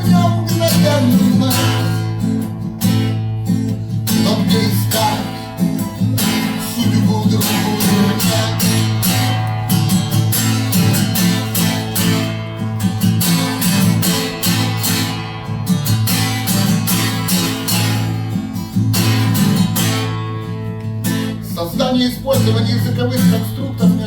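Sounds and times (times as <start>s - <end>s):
acoustic guitar strumming: 0.0s - 24.0s.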